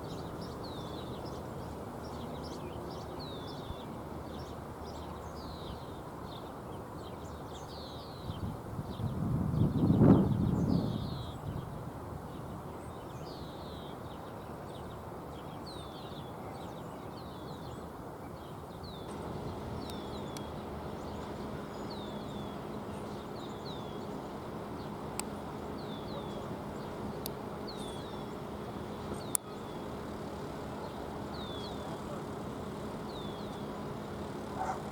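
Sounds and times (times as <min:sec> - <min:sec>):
birds chirping: 0:00.0 - 0:08.3, 0:12.4 - 0:34.9
outdoor background noise: 0:00.0 - 0:34.9
low steady hum: 0:18.8 - 0:34.9
sharp clicks: 0:19.1 - 0:28.4, 0:29.0 - 0:29.6.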